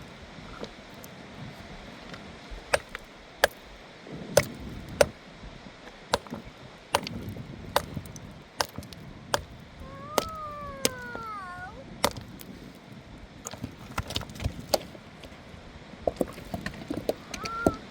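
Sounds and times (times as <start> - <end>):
sharp chopping strikes: 2.7 - 3.7, 4.4 - 5.2, 6.1 - 9.6, 10.2 - 11.1, 12.0 - 12.6
cat meowing: 9.8 - 11.9, 17.2 - 17.9.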